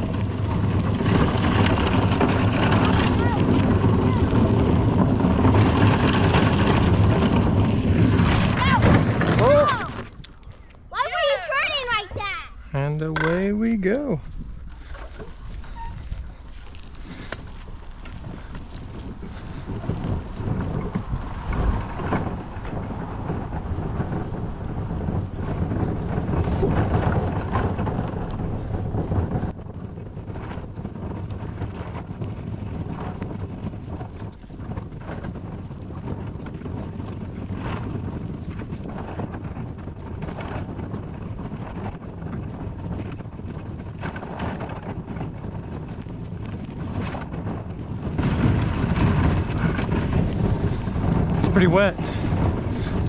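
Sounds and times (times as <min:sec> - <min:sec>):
trailer wheels rumbling and rattling: 0:00.0 - 0:53.0
wind buffeting microphone: 0:00.0 - 0:53.0.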